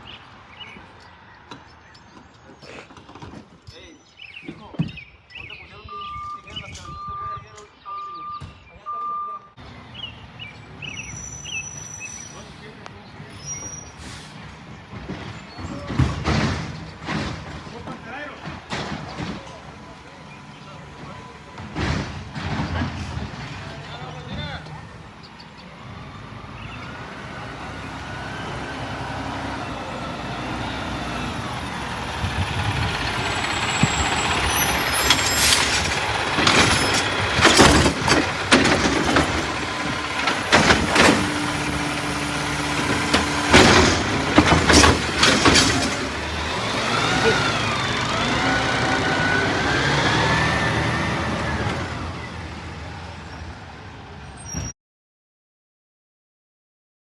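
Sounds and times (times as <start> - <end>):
loud clanks and crashes: 14.8 - 20.1, 20.9 - 24.7, 31.3 - 52.3
truck diesel engine running: 19.0 - 54.2.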